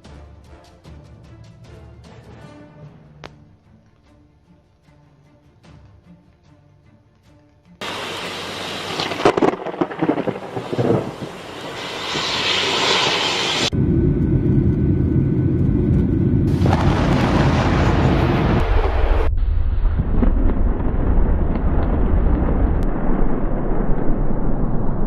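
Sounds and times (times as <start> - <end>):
deep steady rumble: 7.8 - 25.0
thunder clap and rumble: 7.8 - 25.0.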